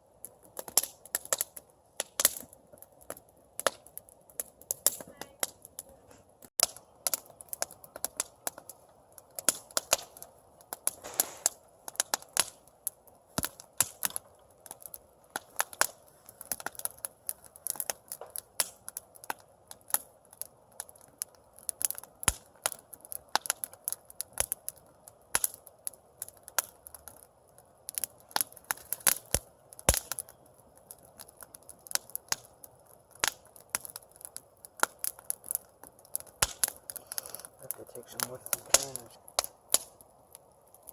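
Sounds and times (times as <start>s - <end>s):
campfire crackling: 0.0s - 40.9s.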